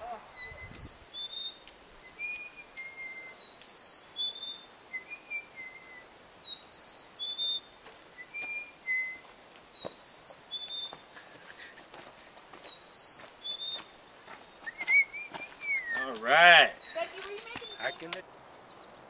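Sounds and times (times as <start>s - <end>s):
footsteps on trail: 7.4s - 19.0s
songbird whistling short notes: 14.6s - 16.2s.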